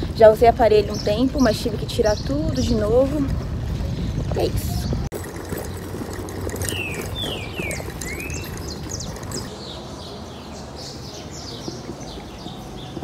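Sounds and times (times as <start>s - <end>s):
bicycle rolling over pavers: 0.0s - 9.5s
small bird chirping: 6.5s - 10.2s.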